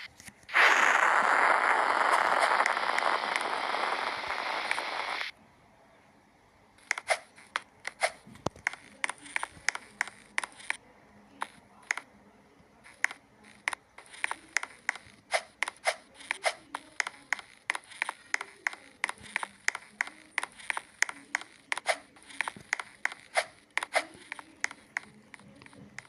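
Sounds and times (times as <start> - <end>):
sharp irregular taps: 12.9 - 26.0.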